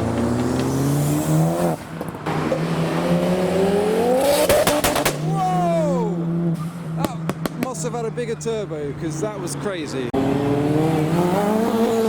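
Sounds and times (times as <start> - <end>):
exhaust pops and cracks: 0.0 - 2.3, 4.3 - 5.4, 7.0 - 7.9
turbocharged car accelerating: 0.0 - 12.0.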